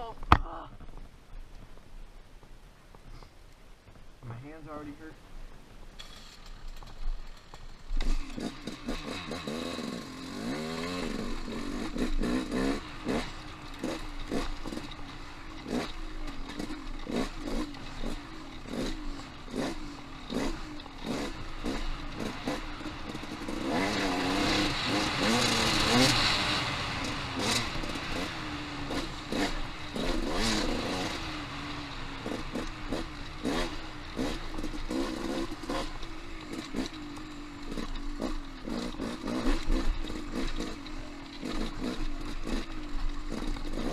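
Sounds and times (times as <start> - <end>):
clatter of rocks and chassis: 5.5 - 43.9
dirt bike engine revving: 6.0 - 43.9.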